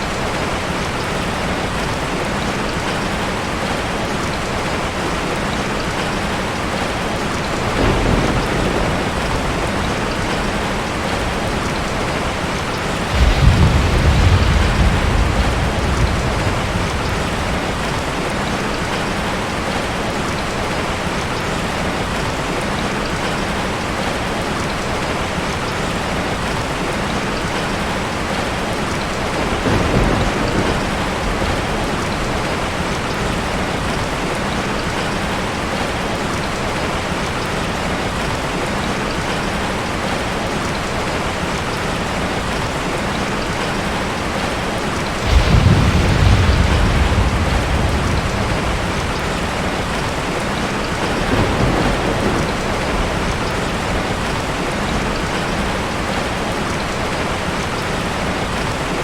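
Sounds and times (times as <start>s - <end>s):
heavy rain: 0.0s - 59.0s
thunder rumbling: 5.9s - 20.0s, 28.3s - 34.0s, 45.1s - 56.5s.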